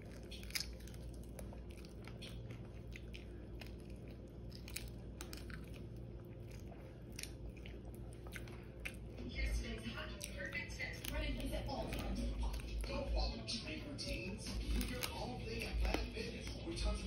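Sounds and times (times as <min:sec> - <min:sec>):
person chewing crispy chicken: 0:00.0 - 0:09.2, 0:10.0 - 0:17.0.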